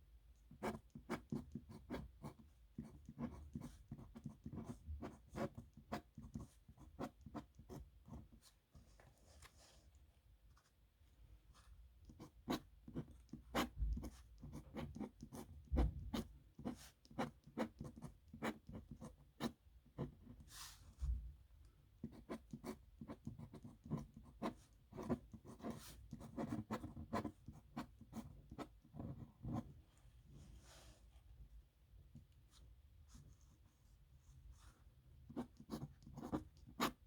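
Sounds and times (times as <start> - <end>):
pen scratching on paper: 0.5 - 8.5, 12.0 - 20.7, 22.0 - 29.8, 35.3 - 37.0.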